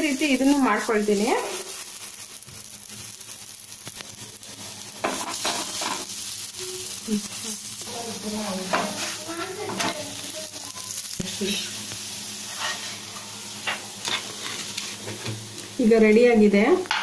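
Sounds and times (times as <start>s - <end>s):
dough sizzling in oil: 0.0s - 17.0s
wooden spatula scraping: 8.6s - 9.9s, 12.4s - 15.4s.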